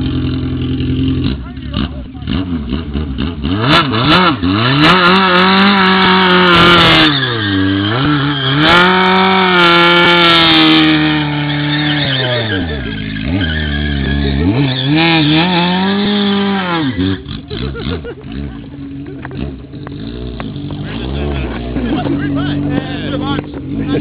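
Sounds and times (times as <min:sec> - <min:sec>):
motorcycle engine revving hard: 0:00.0 - 0:24.0
tyre squeal: 0:05.6 - 0:23.2.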